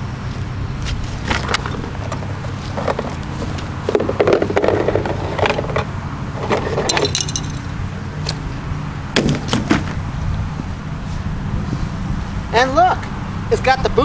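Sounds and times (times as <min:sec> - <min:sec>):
steady low hum: 0:00.0 - 0:14.0
rustling and scraping of cardboard: 0:00.3 - 0:07.0.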